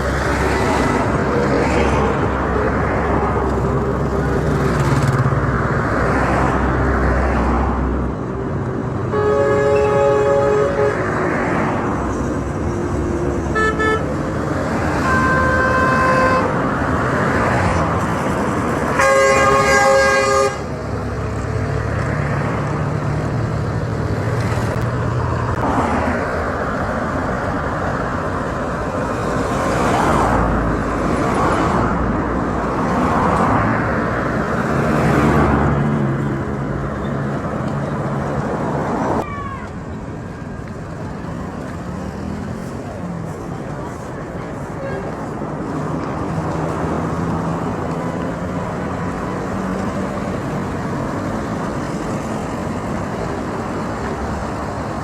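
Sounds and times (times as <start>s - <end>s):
vehicles passing: 0.0s - 55.0s
car horns: 9.1s - 11.3s, 13.4s - 16.8s, 18.8s - 20.7s, 44.7s - 45.3s.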